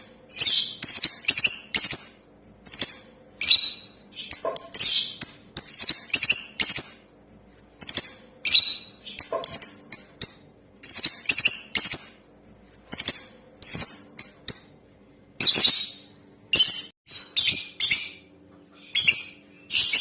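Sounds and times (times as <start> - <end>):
lovebird chirping: 0.0 - 7.2, 7.8 - 20.0.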